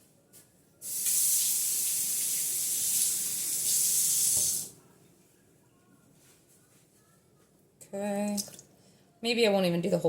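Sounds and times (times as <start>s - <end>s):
tap running water into cup: 4.1s - 4.7s.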